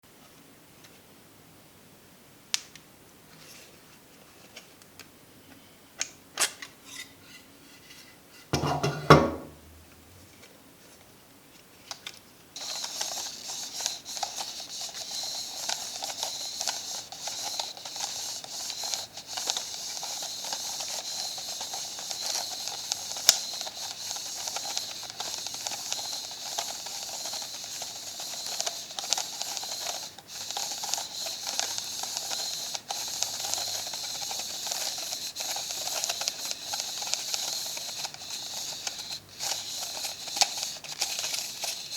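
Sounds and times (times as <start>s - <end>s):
camera mechanism ticking: 12.6s - 41.9s
rasping hiss: 12.6s - 41.9s.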